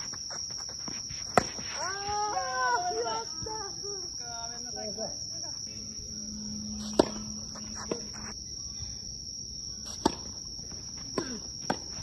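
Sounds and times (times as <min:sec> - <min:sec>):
high-pitched insect drone: 0:00.0 - 0:12.0
racket hitting tennis ball: 0:01.3 - 0:01.8, 0:06.8 - 0:08.3, 0:09.9 - 0:10.4.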